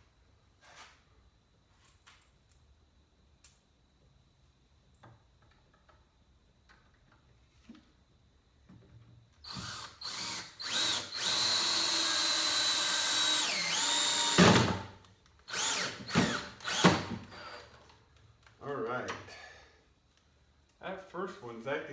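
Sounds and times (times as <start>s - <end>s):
power drill driving screw into wood: 9.4s - 17.7s.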